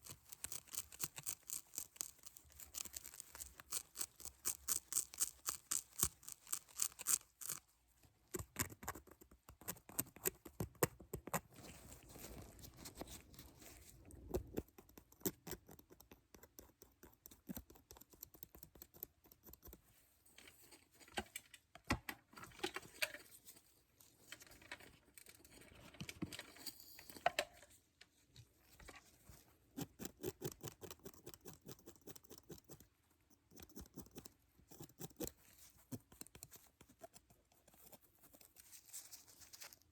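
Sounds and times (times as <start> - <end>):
scratchy rustling: 11.2 - 14.6, 33.8 - 39.9.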